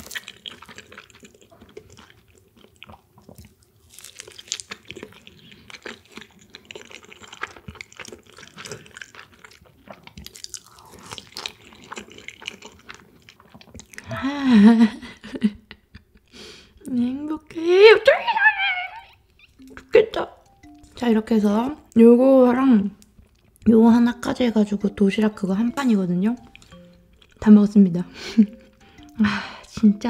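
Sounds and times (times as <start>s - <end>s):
person chewing: 0.0s - 14.2s, 19.1s - 21.0s, 22.9s - 29.8s.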